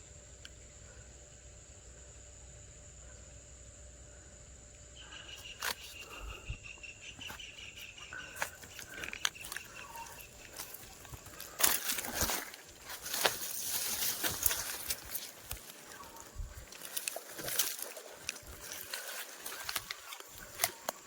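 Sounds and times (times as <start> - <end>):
insect drone: 0.0 - 21.0
broken chirping: 5.2 - 21.0.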